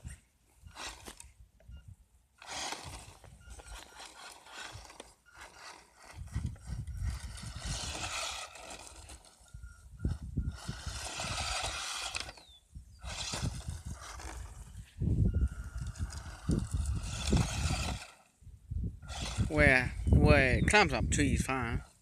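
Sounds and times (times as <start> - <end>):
electric motor whining: 0.0 - 1.4, 2.4 - 18.4, 19.0 - 20.2
low rumbling: 0.0 - 20.8
tyres scrabbling over ground: 0.7 - 1.3, 2.4 - 14.8, 15.6 - 18.3, 19.1 - 19.8.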